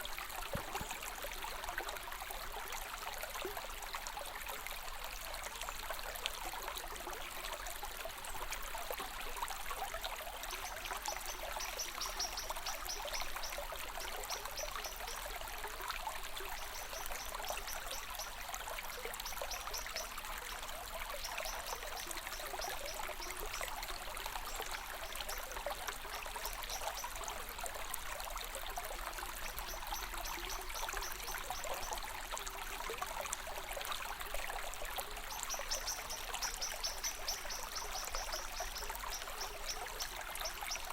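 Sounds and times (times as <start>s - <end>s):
running water rushing: 0.0s - 2.3s.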